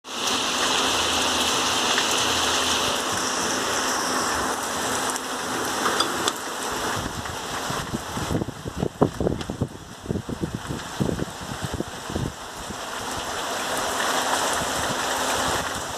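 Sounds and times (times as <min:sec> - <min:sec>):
steady rain: 0:00.0 - 0:15.9
wind buffeting microphone: 0:06.3 - 0:13.4.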